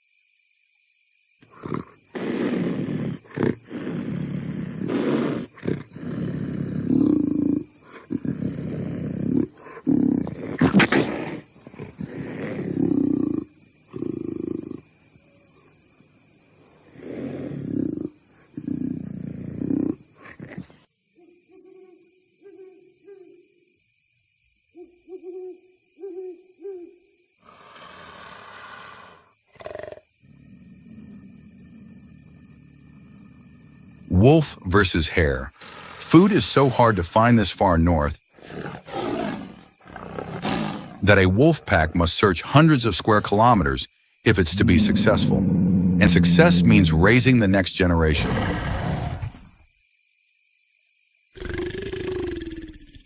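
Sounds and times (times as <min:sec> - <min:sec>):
animal roaring and growling: 0:27.5 - 0:34.1, 0:38.4 - 0:41.1, 0:44.3 - 0:49.5
animal hooting calls: 0:44.3 - 0:47.2.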